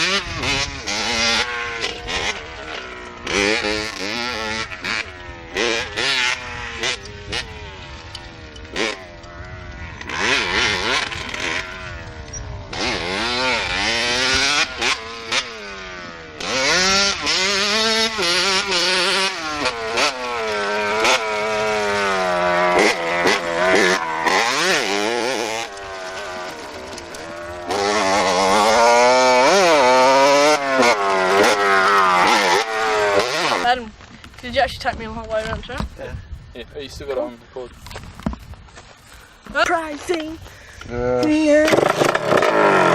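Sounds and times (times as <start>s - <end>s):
small motorbike engine revving: 0.0s - 42.9s.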